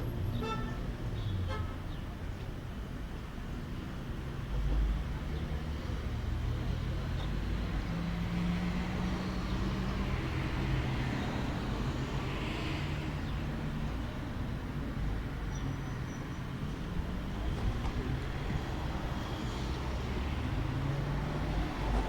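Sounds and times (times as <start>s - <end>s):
road noise: 0.0s - 22.0s
vehicle engines humming: 16.7s - 22.0s.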